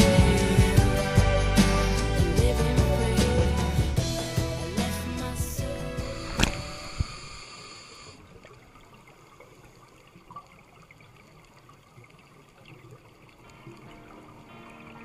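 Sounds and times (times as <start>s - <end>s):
song music: 0.0s - 7.0s
water trickling: 8.1s - 15.0s.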